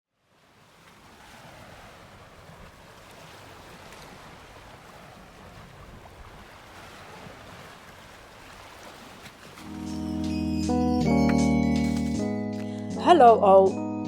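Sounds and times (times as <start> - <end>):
wind and water washing: 0.1 - 10.3.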